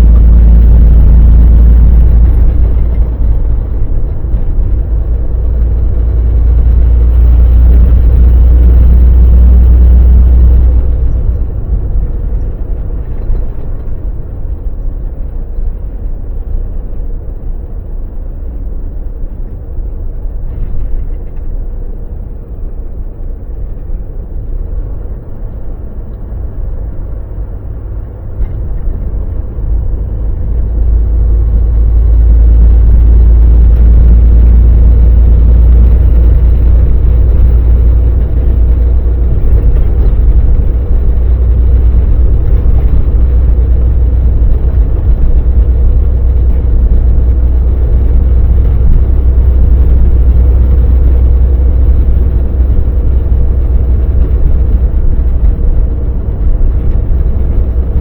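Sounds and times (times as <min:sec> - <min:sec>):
truck engine and road drone: 0:00.0 - 0:58.0.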